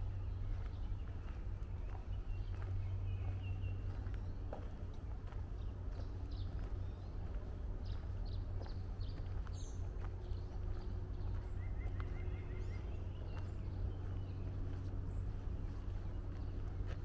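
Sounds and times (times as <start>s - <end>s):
footsteps on woodland trail: 0.0s - 17.0s
songbirds chirping: 0.0s - 17.0s
steady low hum: 0.0s - 17.0s.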